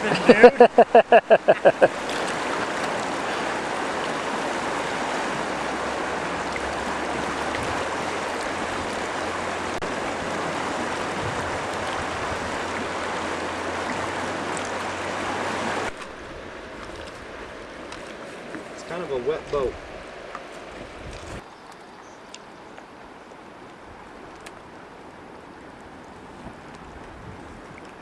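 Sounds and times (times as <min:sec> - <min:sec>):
water rushing through a rapid: 0:00.0 - 0:21.5.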